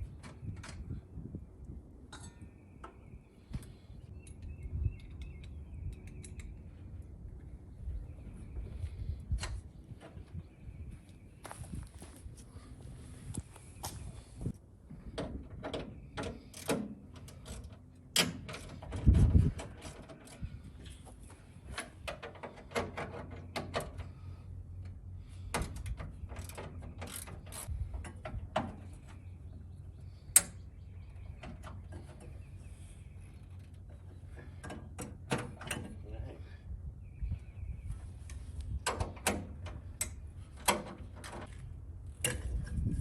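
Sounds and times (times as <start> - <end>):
hand tools clanking on metal: 2.1 - 2.6.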